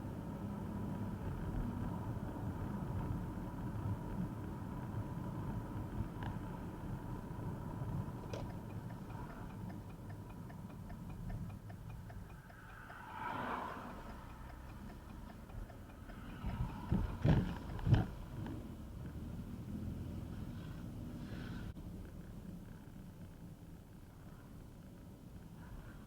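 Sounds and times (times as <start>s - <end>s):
car road and engine rumble: 0.0s - 26.0s
light ticking: 5.9s - 19.2s.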